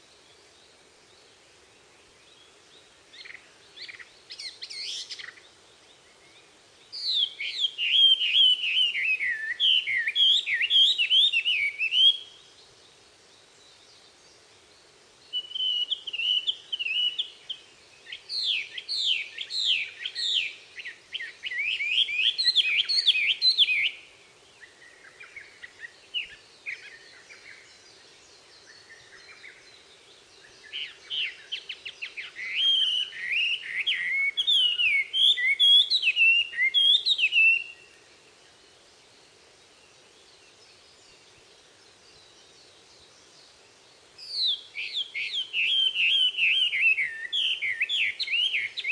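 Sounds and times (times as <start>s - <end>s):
songbirds chirping: 0.0s - 48.9s.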